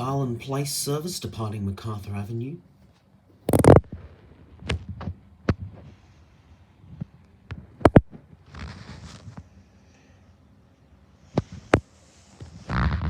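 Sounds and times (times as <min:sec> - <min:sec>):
dull thumps and knocks: 0:04.6 - 0:06.0.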